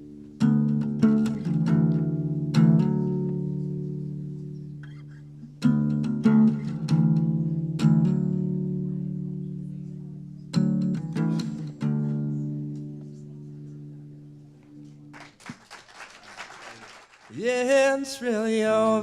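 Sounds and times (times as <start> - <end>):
guitar chords ringing: 0.0 - 15.1.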